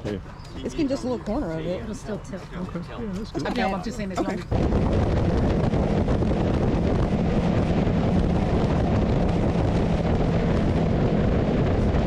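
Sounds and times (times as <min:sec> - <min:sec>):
wind rush on microphone: 0:03.4 - 0:12.0.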